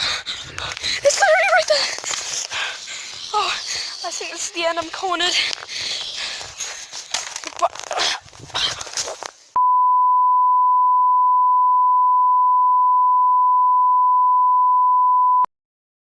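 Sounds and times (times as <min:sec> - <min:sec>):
rustling: 0:00.6 - 0:09.5
long steady electronic beep: 0:09.6 - 0:15.5.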